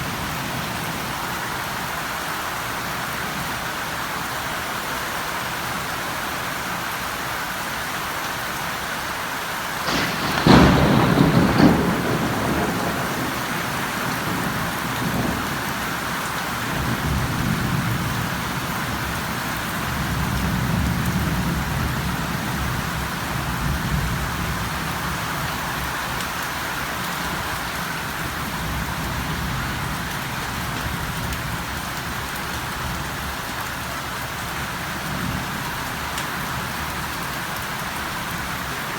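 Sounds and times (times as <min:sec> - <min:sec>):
steady rain falling: 0:00.0 - 0:38.9
thunder clap and rumble: 0:09.7 - 0:37.2.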